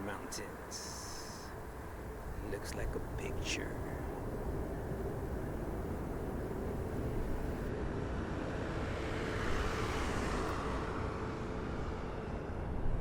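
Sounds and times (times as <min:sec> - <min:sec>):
distant jet airliner hiss: 0:00.0 - 0:07.7
faint hum: 0:00.0 - 0:07.7
low outdoor rumble: 0:00.0 - 0:07.7.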